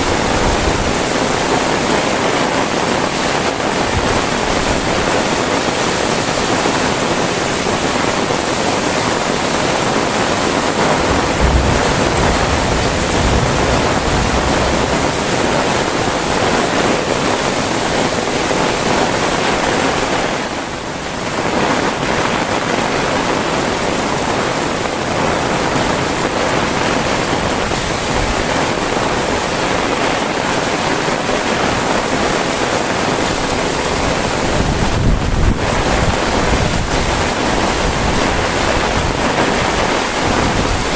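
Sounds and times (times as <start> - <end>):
heavy rain falling: 0.0 - 40.9
short low rumbles: 10.8 - 16.4.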